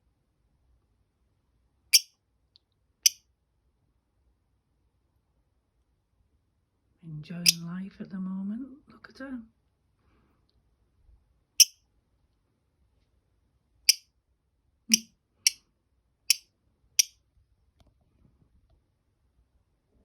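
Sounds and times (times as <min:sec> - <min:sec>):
lovebird chirping: 0:07.4 - 0:07.6, 0:14.9 - 0:15.6.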